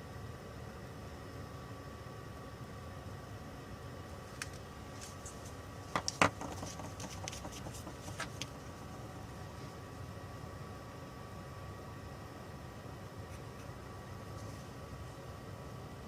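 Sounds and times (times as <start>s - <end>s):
faint steady hum: 0.0s - 16.0s
small tools clicking on workbench: 6.0s - 8.5s.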